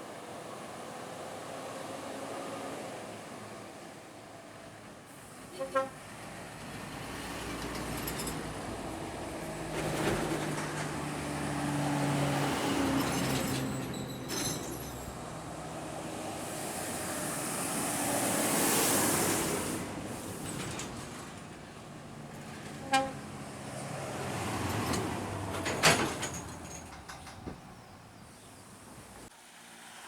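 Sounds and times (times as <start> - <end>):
trucks driving past: 0.1 - 30.0
truck horn beeps: 5.5 - 6.0, 22.8 - 23.3.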